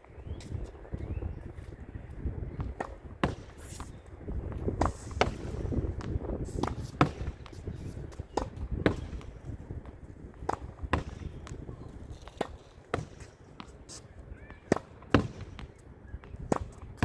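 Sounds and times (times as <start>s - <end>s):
racket striking tennis ball: 2.7s - 3.9s, 4.7s - 7.6s, 14.7s - 15.6s.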